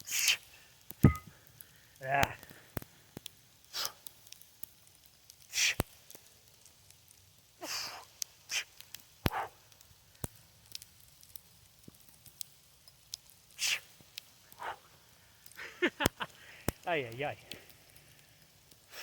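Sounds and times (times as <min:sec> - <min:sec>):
person breathing hard: 0:15.5 - 0:16.8.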